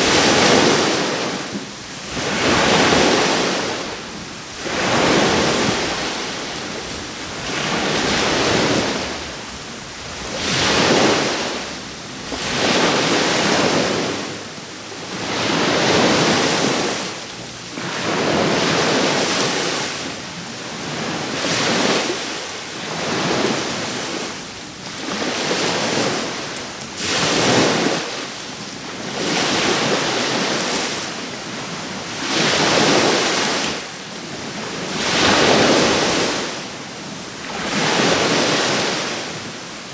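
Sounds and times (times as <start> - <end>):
wind noise on microphone: 0.0 - 20.1
small waves breaking on shore: 0.0 - 39.9.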